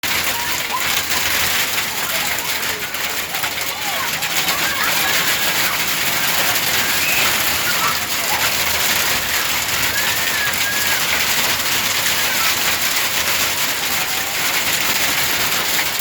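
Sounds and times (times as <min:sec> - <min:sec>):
hail and rain pelting: 0:00.0 - 0:16.0
faint whistles: 0:06.7 - 0:08.0.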